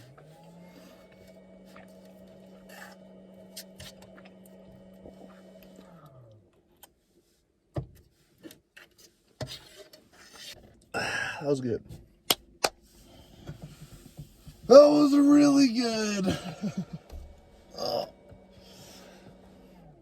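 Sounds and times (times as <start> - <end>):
small electric motor humming: 0.0 - 6.3.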